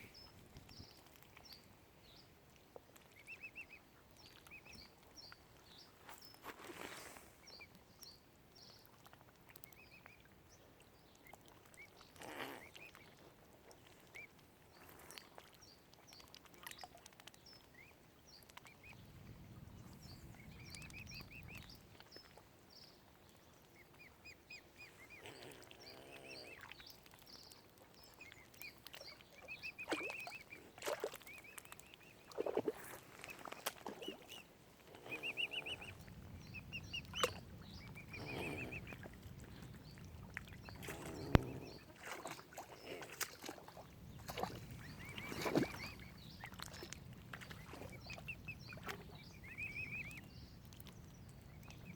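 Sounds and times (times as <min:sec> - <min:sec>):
cygnets peeping: 0:17.6 - 0:51.9.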